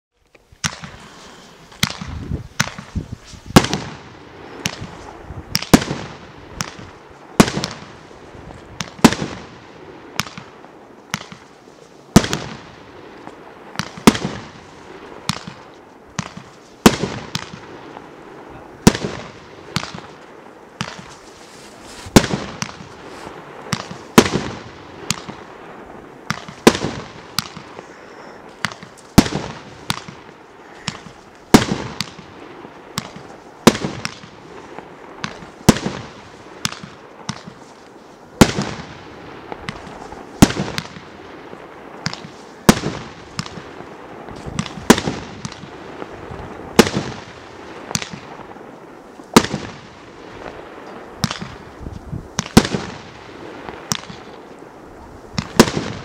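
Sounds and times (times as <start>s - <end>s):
fireworks bangs: 0.5s - 56.0s
fireworks hiss: 0.5s - 56.0s.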